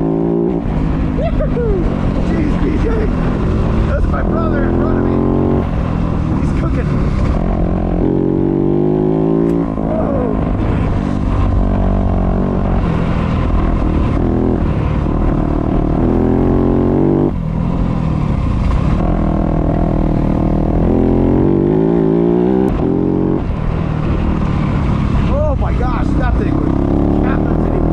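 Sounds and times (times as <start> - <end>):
dirt bike engine revving: 1.2 - 5.8, 19.0 - 23.4, 26.2 - 27.9.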